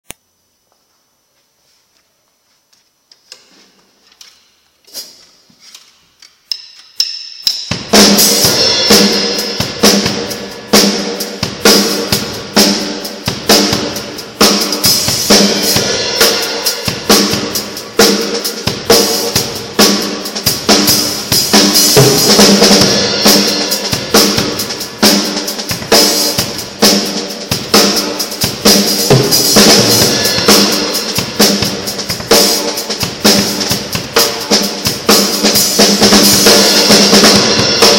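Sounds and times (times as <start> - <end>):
cymbals washing: 6.4 - 37.9
drum kit playing: 6.5 - 37.9.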